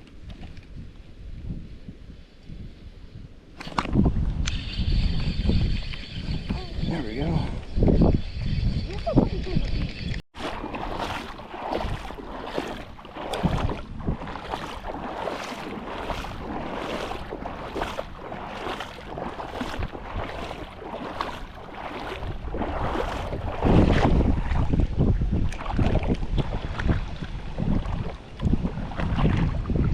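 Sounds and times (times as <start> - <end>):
wind buffeting microphone: 0.2 - 29.9
water sloshing and splashing: 8.9 - 29.9.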